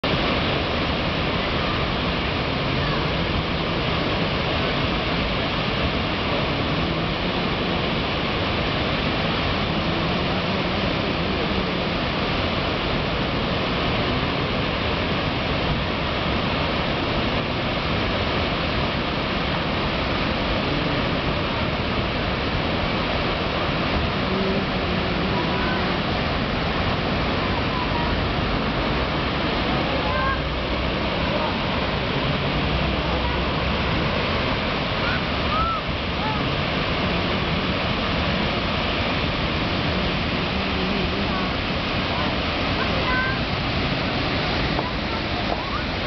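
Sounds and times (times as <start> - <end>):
water pouring from dam spillway: 0.0 - 46.0.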